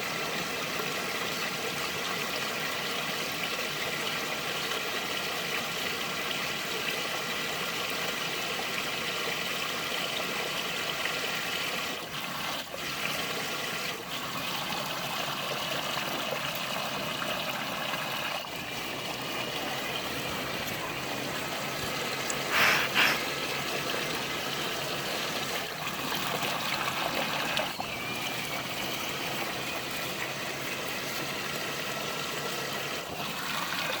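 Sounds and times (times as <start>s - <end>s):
water sloshing and trickling: 9.8s - 34.0s
small electric motor whine: 26.8s - 32.9s.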